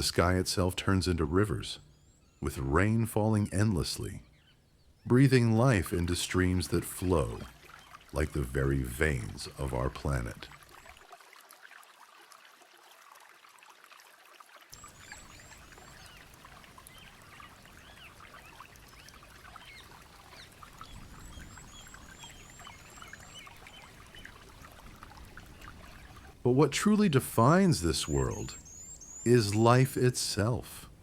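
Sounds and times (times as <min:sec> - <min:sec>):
water trickling and pouring: 0:05.1 - 0:30.4
birds chirping and whistling: 0:14.8 - 0:26.3, 0:28.0 - 0:29.7.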